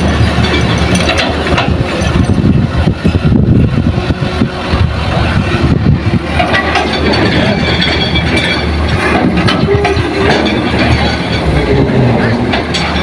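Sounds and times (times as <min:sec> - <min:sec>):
knocks and clanks: 0:00.0 - 0:03.2, 0:06.2 - 0:13.0
excavator diesel engine rumbling: 0:00.0 - 0:13.0.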